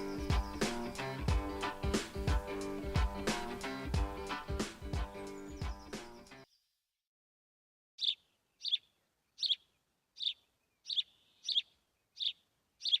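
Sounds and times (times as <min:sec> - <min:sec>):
short high bird chirps: 0:08.0 - 0:13.0.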